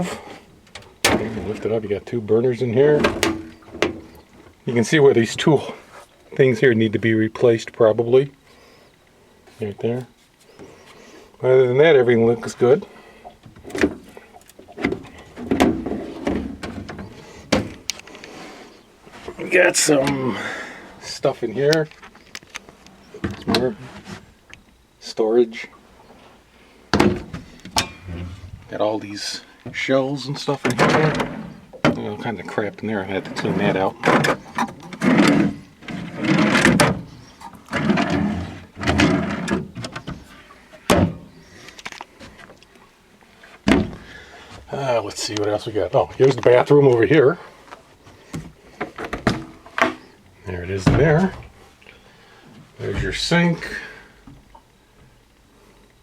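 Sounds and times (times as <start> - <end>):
knocks and clunks of cabin fittings: 0.6 - 1.8, 2.9 - 4.6, 13.3 - 18.0, 26.9 - 28.7, 33.8 - 41.4, 43.6 - 44.7, 48.3 - 50.1
drawers scraping open: 27.0 - 28.8, 30.6 - 31.7, 33.1 - 41.4.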